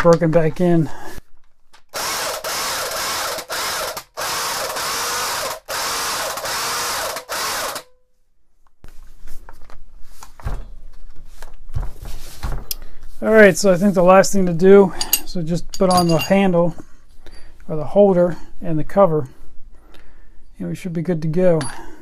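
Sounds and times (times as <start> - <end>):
rotary hammer motor running: 2.0 - 7.9.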